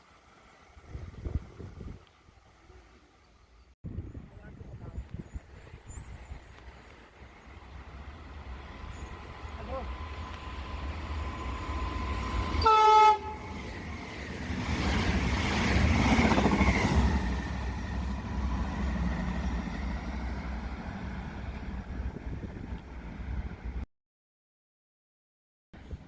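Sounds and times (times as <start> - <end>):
passing train rumble: 0.1 - 23.8
train horn blast: 12.3 - 13.7.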